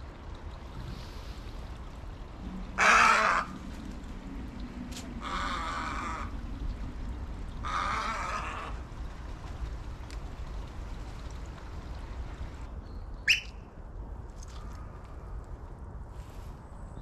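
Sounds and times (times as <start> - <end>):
animal harsh calls: 2.8 - 3.5.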